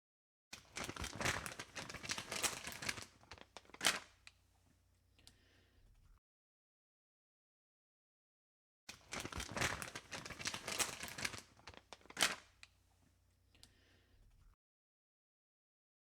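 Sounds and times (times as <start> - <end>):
crinkling crackling rustle: 0.6 - 4.4, 8.9 - 12.8.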